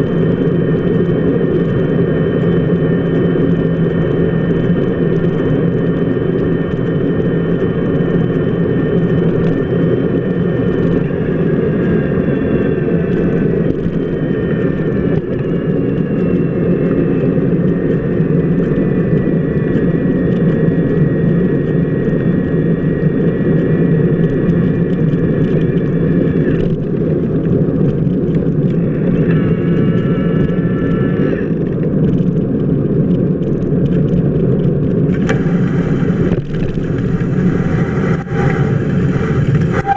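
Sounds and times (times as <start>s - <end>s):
bicycle wheel rolling on wet pavement: 34.6s - 39.9s
faint high drifting tones: 37.0s - 39.9s.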